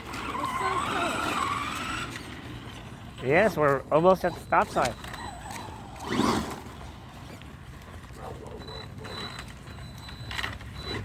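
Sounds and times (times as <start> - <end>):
rc truck motor whine: 0.0 - 2.8, 4.3 - 7.1
tyres rumbling on pavement: 0.0 - 11.0.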